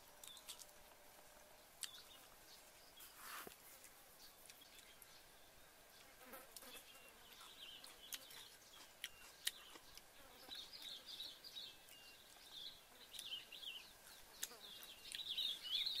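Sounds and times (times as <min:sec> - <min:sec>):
faint high-pitched chirping: 0:04.1 - 0:16.0.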